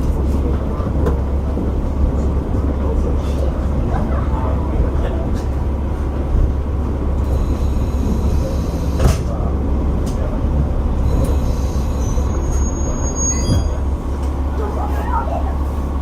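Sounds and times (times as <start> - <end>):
diesel railcar rumble: 0.0 - 16.0
thin high squeal: 11.4 - 13.8.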